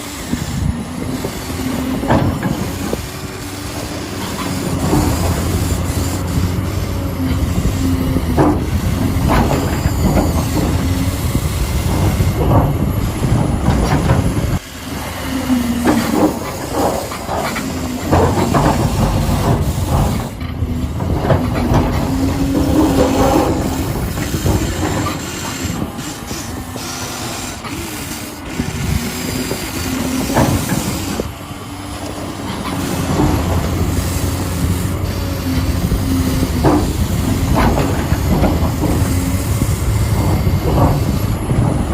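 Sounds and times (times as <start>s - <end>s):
toy excavator motors whirring: 0.0s - 41.9s
tracks rattling and clicking: 0.0s - 41.9s.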